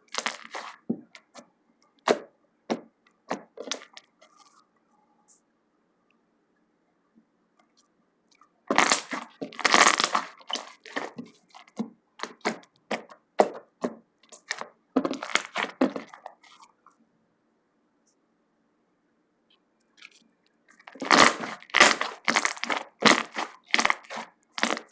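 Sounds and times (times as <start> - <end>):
slime crackling and popping: 0.0 - 0.8, 8.7 - 13.1, 20.0 - 24.9.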